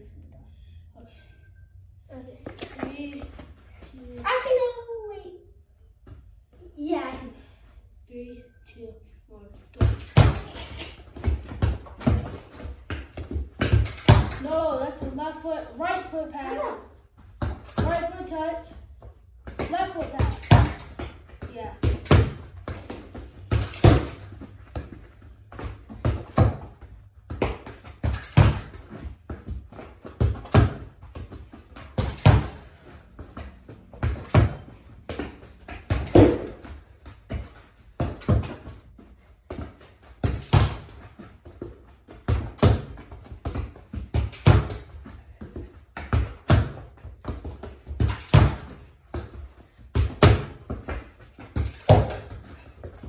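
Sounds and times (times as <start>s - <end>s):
ball thudding against wall: 21.8s - 24.9s.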